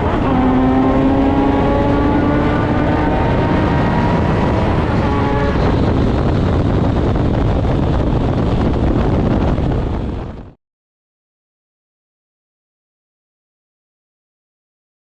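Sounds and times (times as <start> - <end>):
motorcycle engine: 0.0 - 10.6
wind rushing: 0.0 - 10.6.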